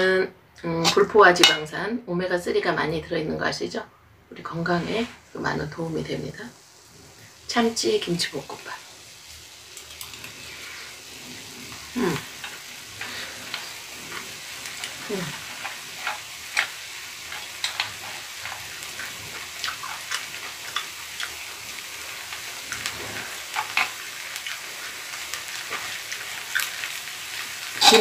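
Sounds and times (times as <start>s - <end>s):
close chewing: 17.4s - 21.6s, 22.6s - 27.0s.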